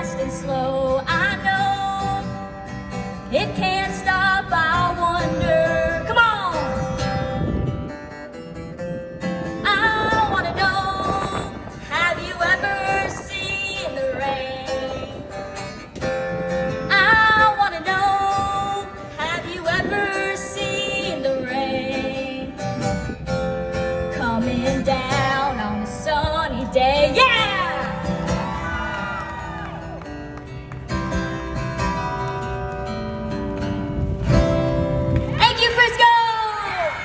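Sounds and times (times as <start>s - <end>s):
woman singing: 0.0s - 2.4s, 3.3s - 6.8s, 9.6s - 15.4s, 16.8s - 22.8s, 24.1s - 28.1s
guitar accompaniment: 0.0s - 37.0s.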